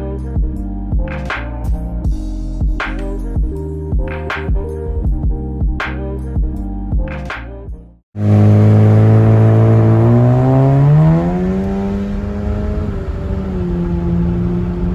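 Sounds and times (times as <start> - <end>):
background music: 0.0 - 8.0
car exhaust accelerating: 8.2 - 14.9.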